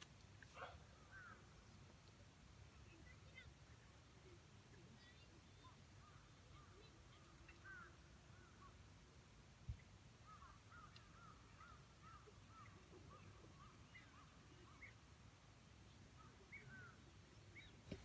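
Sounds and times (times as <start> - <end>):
distant bird chirps: 15.9 - 18.0.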